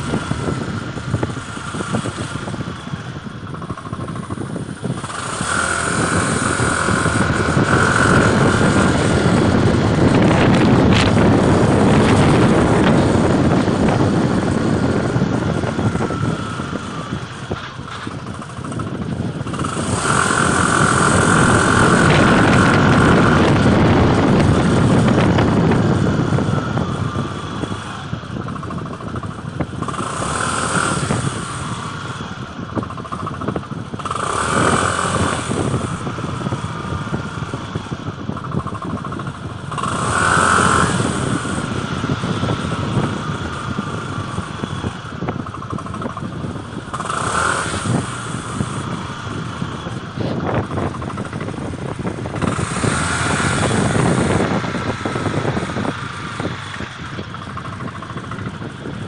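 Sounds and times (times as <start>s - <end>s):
harsh clutch noise: 0.0s - 59.0s
scooter engine: 0.0s - 59.0s.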